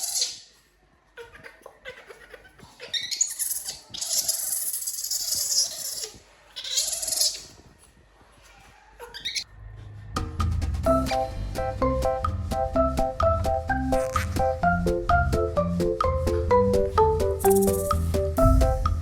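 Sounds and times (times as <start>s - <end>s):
baby monkey crying: 0.0s - 0.5s, 1.2s - 7.6s, 9.0s - 9.5s.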